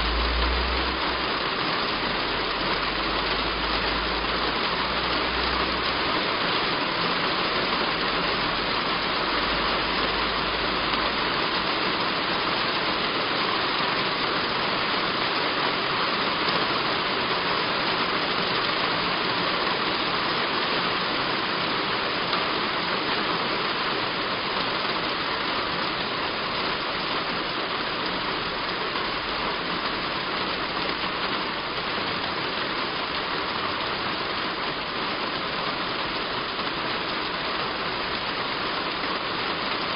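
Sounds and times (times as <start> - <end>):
low rumble: 0.0 - 5.9
heavy rain on a roof: 0.0 - 39.9.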